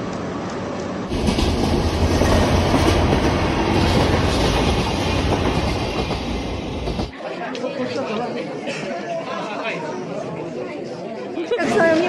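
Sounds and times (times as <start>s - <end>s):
train wheels rumbling on bridge: 0.0s - 7.1s.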